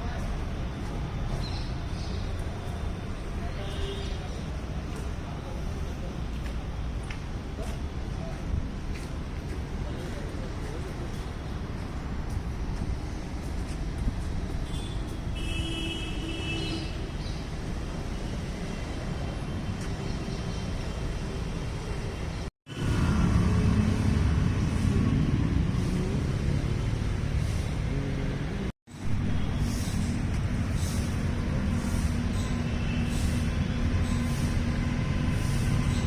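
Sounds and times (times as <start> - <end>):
outdoor background rumble: 17.0 - 36.0.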